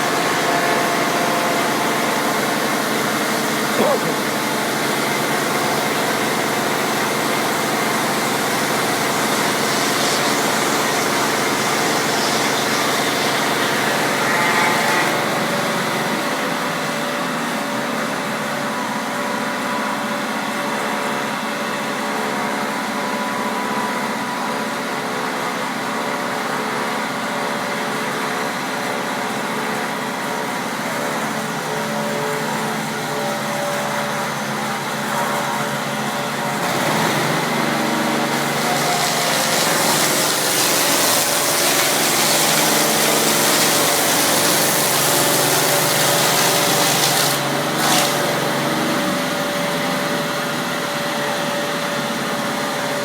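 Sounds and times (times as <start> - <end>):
machine motors humming: 9.0 - 17.6, 31.0 - 51.4.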